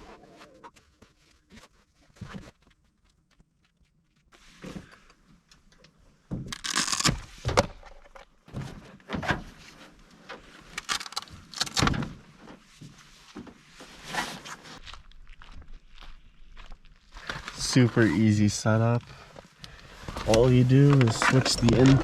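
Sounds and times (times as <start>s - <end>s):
camping gear clunking and rustling: 7.3s - 14.8s, 19.3s - 22.0s.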